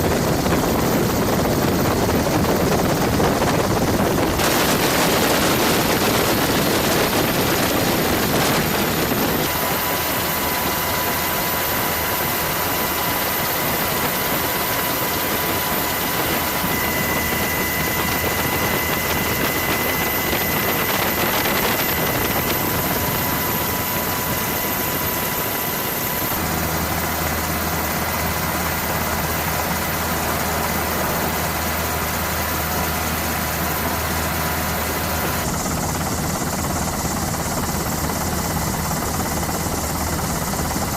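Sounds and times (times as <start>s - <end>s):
thin high whine: 4.1s - 29.0s.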